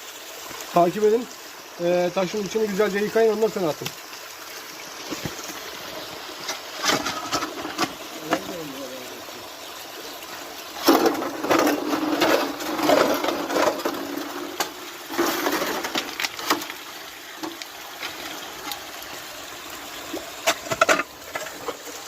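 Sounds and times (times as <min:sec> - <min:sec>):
stones splashing in water: 0:10.8 - 0:18.8.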